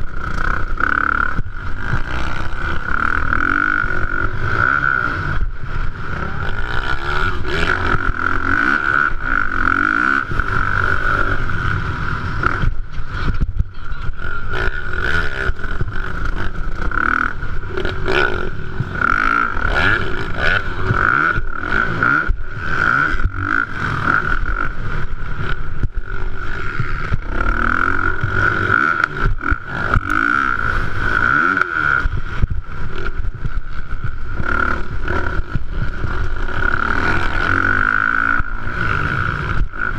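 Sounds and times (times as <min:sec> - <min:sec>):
motocross bike engines revving: 0:00.0 - 0:39.9
steady high whine: 0:00.0 - 0:39.9.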